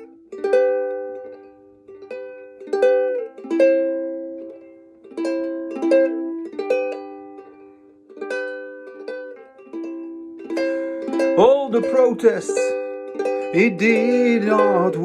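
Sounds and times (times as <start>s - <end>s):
strummed acoustic string chords: 8.4s - 15.0s.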